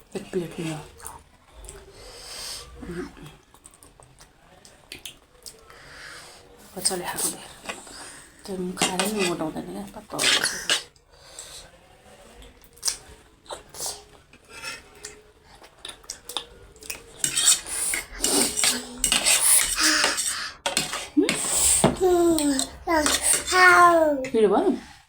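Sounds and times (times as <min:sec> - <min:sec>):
cutlery clinking against bowls: 0:08.8 - 0:09.4, 0:16.3 - 0:23.6.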